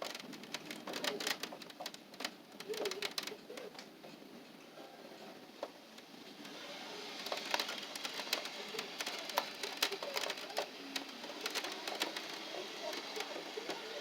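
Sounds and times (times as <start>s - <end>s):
raindrops ticking on hard surface: 0.0s - 3.9s, 5.9s - 13.9s
rain hiss: 5.5s - 14.0s.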